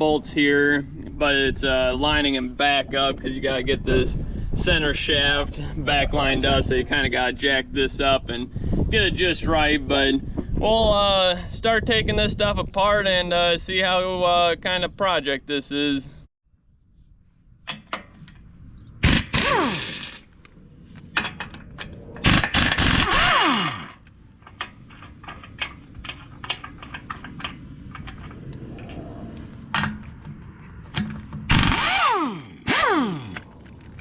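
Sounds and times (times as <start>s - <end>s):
impact wrench whirring: 19.0s - 20.3s, 22.2s - 24.0s, 31.5s - 33.4s
metal tools clinking: 24.4s - 30.0s.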